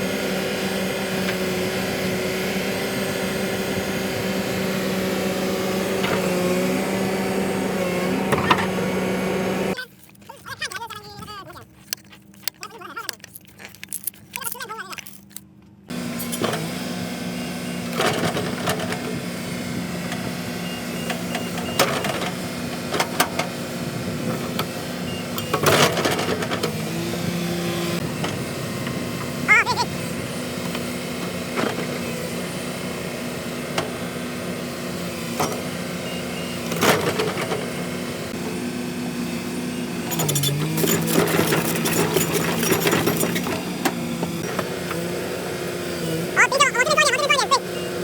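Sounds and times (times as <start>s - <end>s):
engine humming steadily: 0.0s - 48.0s
brief rising squeak: 40.1s - 43.6s.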